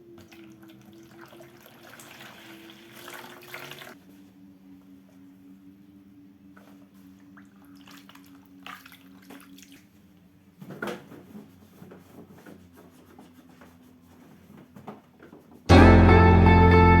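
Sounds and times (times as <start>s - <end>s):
wiping freezer by hand: 10.6s - 15.7s.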